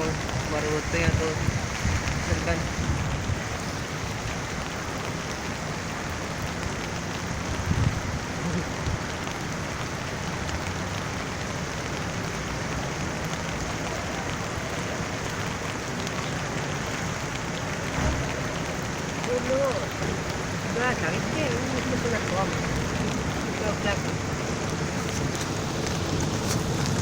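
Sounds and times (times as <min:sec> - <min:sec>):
heavy rain pouring: 0:00.0 - 0:27.0.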